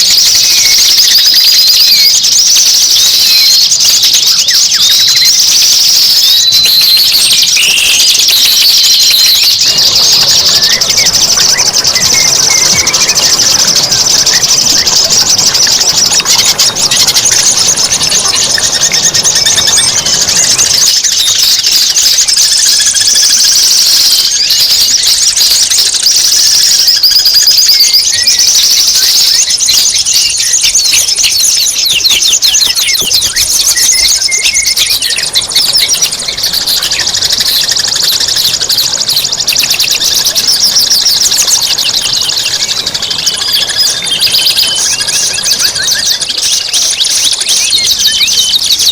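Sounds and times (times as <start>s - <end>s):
songbird trills and whistles: 0.0s - 48.9s.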